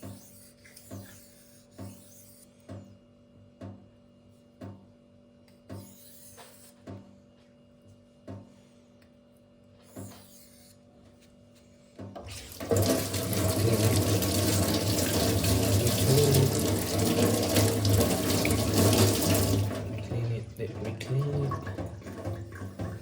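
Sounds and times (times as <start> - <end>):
water running from a tap: 12.2 - 23.0.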